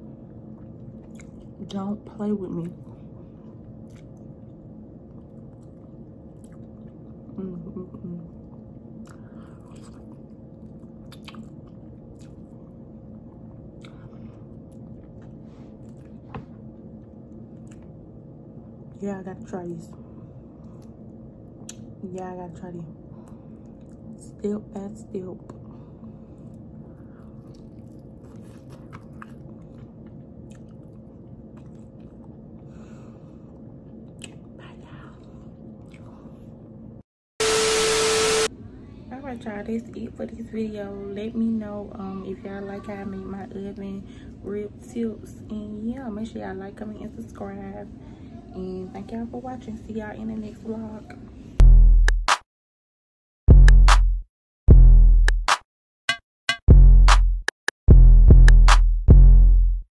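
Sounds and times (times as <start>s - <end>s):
low background hum: 0.0s - 51.6s
person chewing with wet smacks: 0.2s - 1.6s, 2.6s - 18.0s, 23.2s - 24.2s, 26.3s - 32.6s, 33.5s - 34.6s, 35.2s - 36.4s
wet mouth clicks and smacks: 3.8s - 4.2s, 11.0s - 12.4s, 34.1s - 34.5s.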